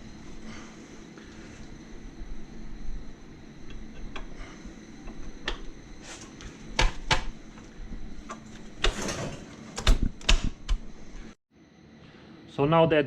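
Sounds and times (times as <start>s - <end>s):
rattling scrape: 8.4s - 9.6s.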